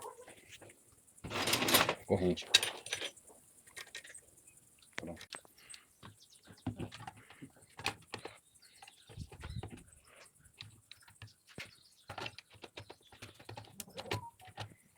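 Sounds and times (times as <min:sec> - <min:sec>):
metal parts clicking and knocking: 0:01.2 - 0:04.2.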